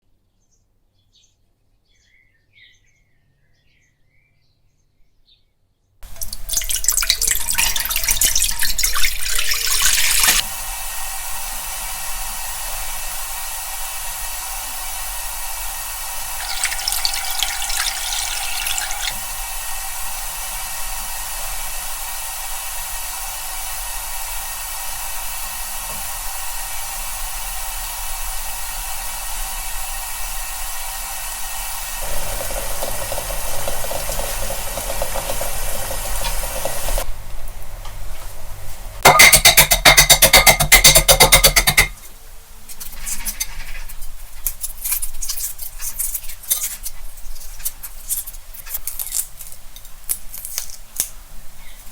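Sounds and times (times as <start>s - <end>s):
water boiling: 6.0s - 42.0s
loud rapid rattling: 32.0s - 37.1s.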